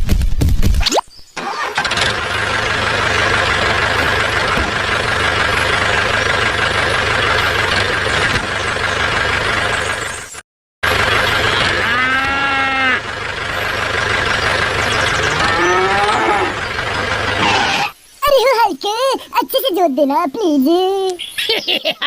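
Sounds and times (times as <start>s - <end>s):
tractor engine running: 1.4s - 17.9s
engine whine: 1.4s - 18.0s.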